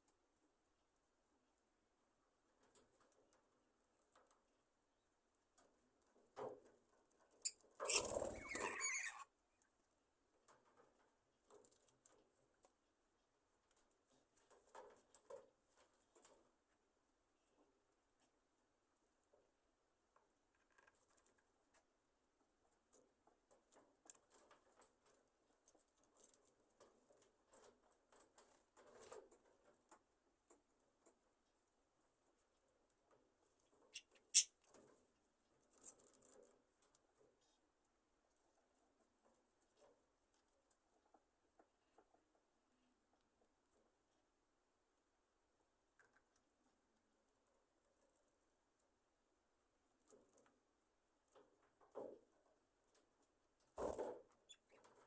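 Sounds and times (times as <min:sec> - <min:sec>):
small rustles: 0:02.2 - 0:44.2
birds scratching and shuffling: 0:05.5 - 0:09.3
wings flapping: 0:07.8 - 0:08.9.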